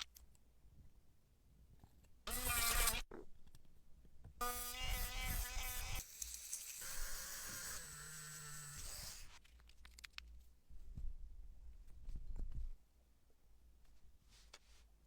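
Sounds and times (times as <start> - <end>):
small motor buzzing: 2.3 - 3.0, 4.4 - 9.4.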